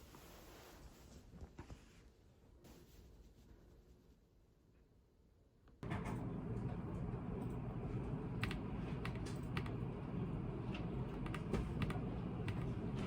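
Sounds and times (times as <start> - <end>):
computer keyboard typing: 8.4 - 9.8.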